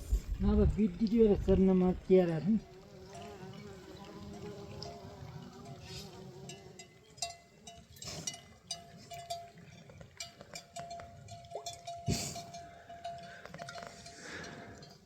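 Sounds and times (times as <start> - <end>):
livestock bells clinking: 6.4 - 15.0.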